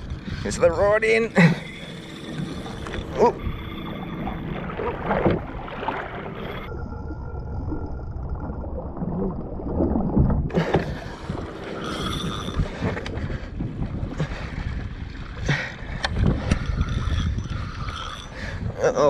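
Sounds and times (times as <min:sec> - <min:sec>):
water lapping against kayak hull: 0:00.0 - 0:18.9
wind on microphone: 0:09.7 - 0:19.0.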